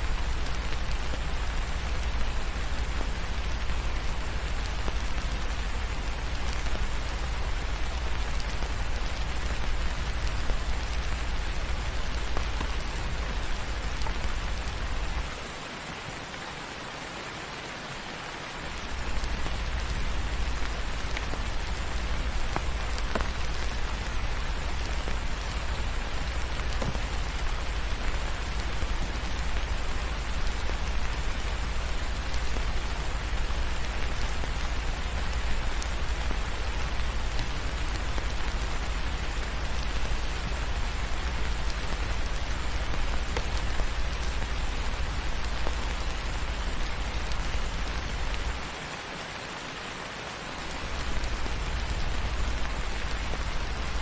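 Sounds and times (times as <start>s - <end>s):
steady rain falling: 0.0s - 54.0s
faint ticks: 18.8s - 48.6s.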